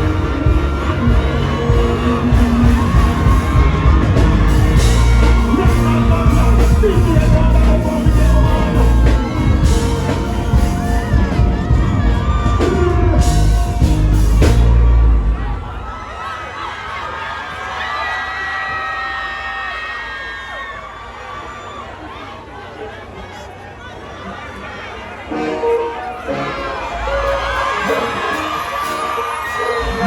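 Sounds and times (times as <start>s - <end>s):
person singing: 0.0s - 11.8s
dancehall music with heavy bass: 0.0s - 16.2s
crowd yelling: 0.0s - 30.0s.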